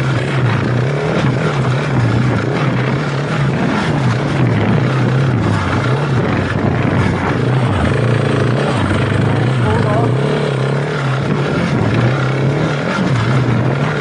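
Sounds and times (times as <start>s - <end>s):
motorcycle engine running: 0.0s - 14.0s
steady rushing noise: 0.0s - 14.0s.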